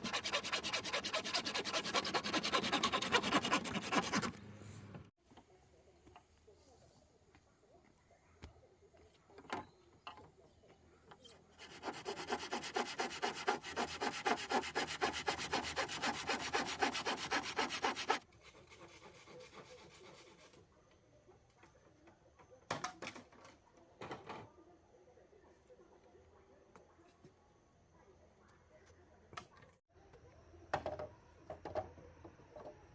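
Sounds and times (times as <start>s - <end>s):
hand saw cutting wood: 0.0s - 4.4s, 11.6s - 20.6s.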